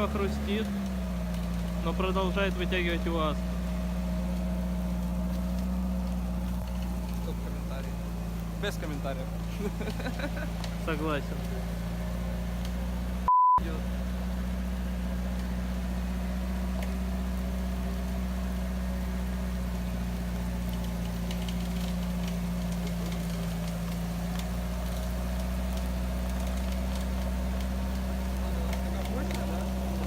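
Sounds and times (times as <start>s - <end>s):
engine idling: 0.0s - 30.0s
censor bleep tone: 13.3s - 13.6s.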